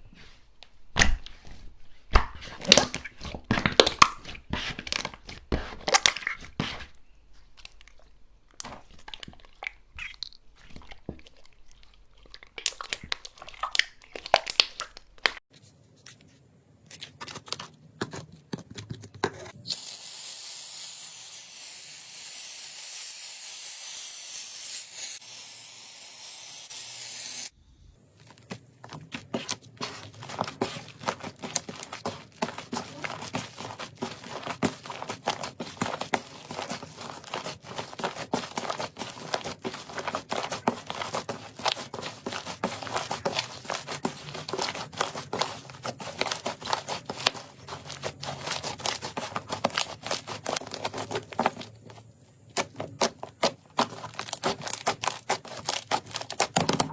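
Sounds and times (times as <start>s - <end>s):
crunchy slime crackling and popping: 11.3s - 15.4s, 29.0s - 51.8s, 52.6s - 56.7s.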